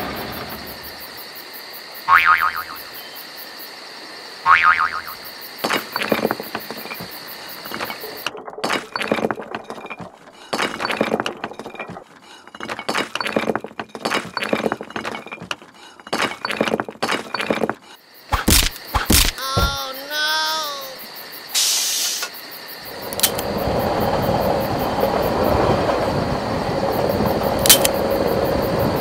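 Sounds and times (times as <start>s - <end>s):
plastic bricks clattering: 7.6s - 17.8s.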